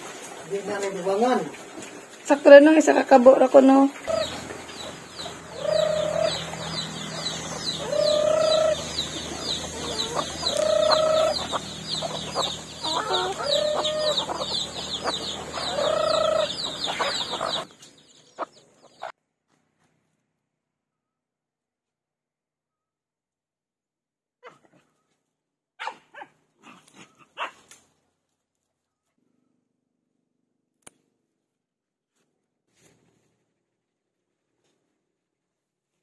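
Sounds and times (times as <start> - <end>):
chickens calling: 0.0 - 19.1
high-pitched chirping: 4.1 - 17.7.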